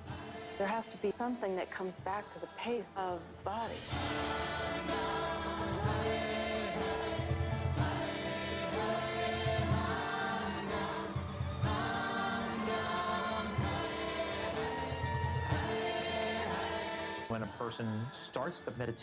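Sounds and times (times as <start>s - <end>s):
steady bass accompaniment: 3.9s - 17.7s.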